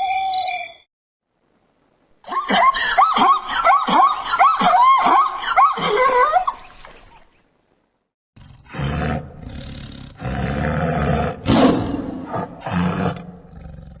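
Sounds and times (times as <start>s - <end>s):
animal roaring: 8.4s - 14.0s.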